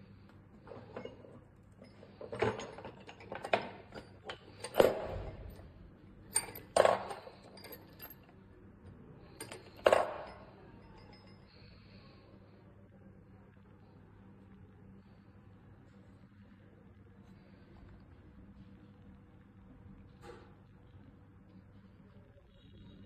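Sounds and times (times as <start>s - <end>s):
screws clinking on metal: 0.6s - 8.4s, 9.3s - 12.0s.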